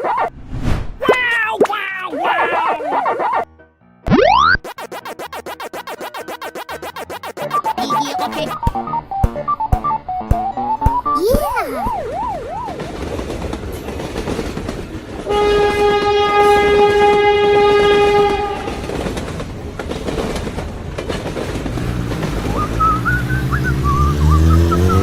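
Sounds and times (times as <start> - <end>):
swooping pitch glides: 4.1 - 11.2, 22.4 - 25.0
cartoon train rumbling clatter: 12.0 - 25.0
train horn held tone: 15.3 - 19.0.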